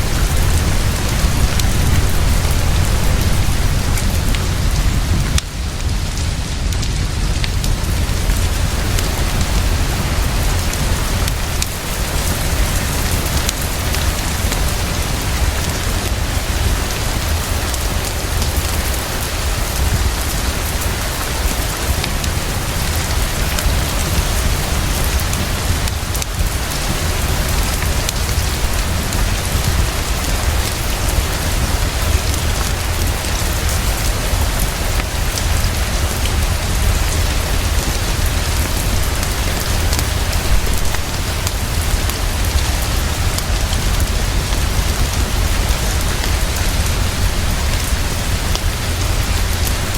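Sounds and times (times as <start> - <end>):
deep low rumble: 0.0 - 17.5
heavy rainfall: 0.0 - 49.9.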